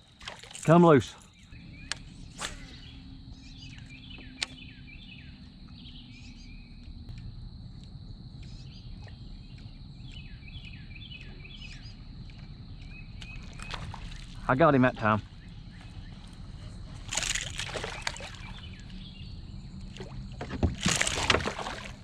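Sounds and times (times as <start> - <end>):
birds chirping: 0.0 - 21.9
low steady rumble: 1.5 - 17.6.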